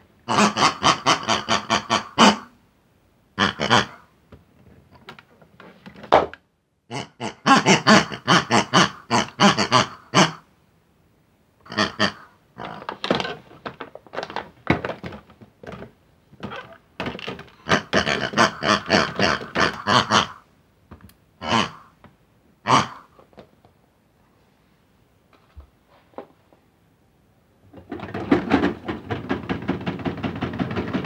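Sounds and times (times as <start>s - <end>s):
cartoon pig grunting and oinking: 0.2s - 2.6s, 3.4s - 4.1s, 6.9s - 10.5s, 11.6s - 12.9s, 17.6s - 20.5s, 21.4s - 22.0s, 22.6s - 23.1s.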